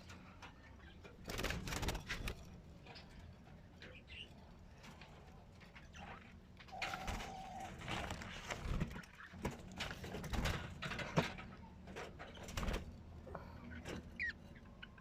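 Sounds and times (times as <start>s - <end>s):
bird chicks calling: 13.4s - 15.0s.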